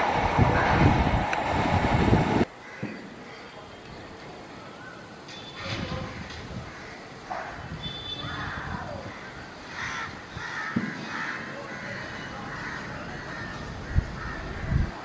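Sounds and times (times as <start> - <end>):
birds calling harshly: 2.6 - 14.8.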